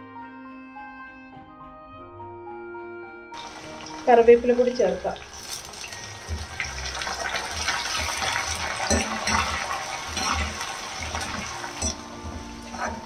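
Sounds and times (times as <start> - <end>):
leaves sizzling in hot oil: 3.4 - 13.0
steel spoon scraping pan: 5.2 - 13.0.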